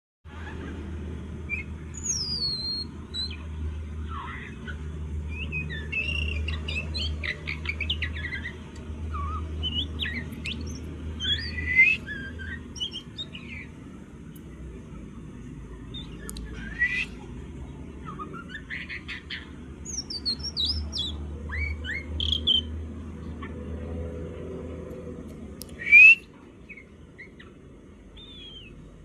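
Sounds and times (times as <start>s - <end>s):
steady low hum: 0.3s - 29.0s
bird singing varied whistles: 1.5s - 3.4s, 4.1s - 13.7s, 16.0s - 17.2s, 18.0s - 22.7s, 25.6s - 27.5s, 28.2s - 28.8s.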